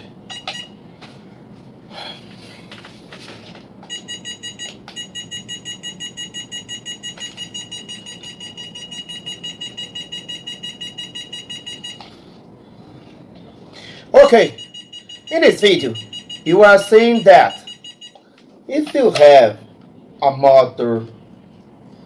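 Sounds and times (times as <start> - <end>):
high-pitched electronic beeps: 3.9 - 12.8, 14.2 - 20.2, 21.2 - 22.0.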